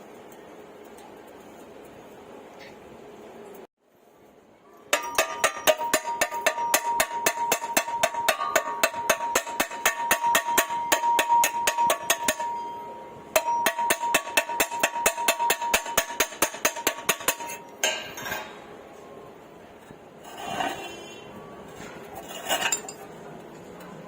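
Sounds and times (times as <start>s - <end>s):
steady ringing tone: 4.9s - 16.2s.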